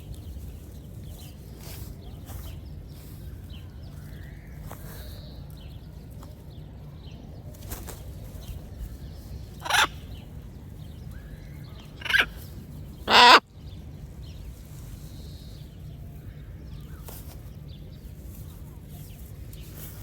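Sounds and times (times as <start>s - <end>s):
parrot squawking: 9.6s - 9.9s, 12.0s - 12.3s, 13.1s - 13.4s.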